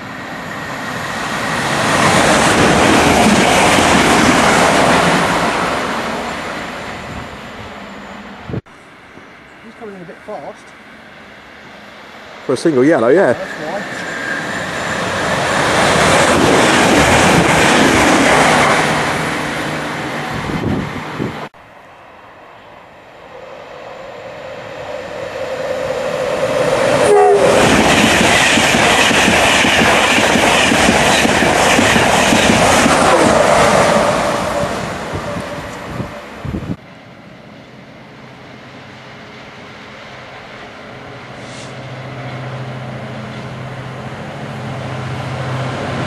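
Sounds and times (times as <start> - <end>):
train rushing past on rails: 0.0 - 46.0
train horn blast: 26.9 - 27.9, 33.1 - 36.4.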